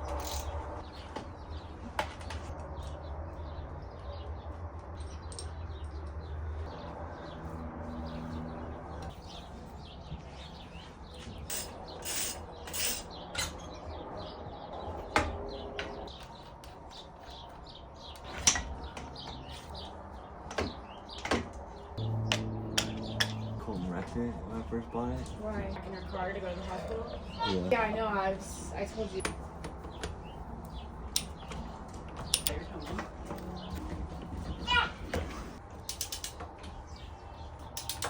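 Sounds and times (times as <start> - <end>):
birds chirping: 0.0 - 38.0
low steady hum: 22.0 - 29.2.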